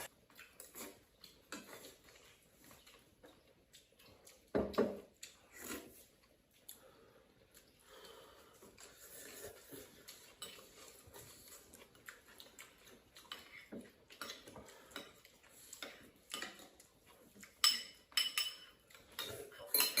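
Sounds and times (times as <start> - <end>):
utensils clinking on plates: 13.3 - 20.0.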